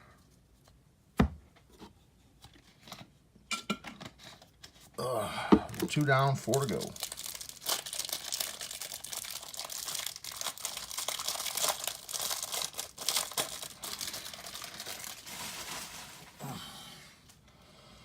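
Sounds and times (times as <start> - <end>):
packaging tearing and crinkling: 5.8 - 16.5.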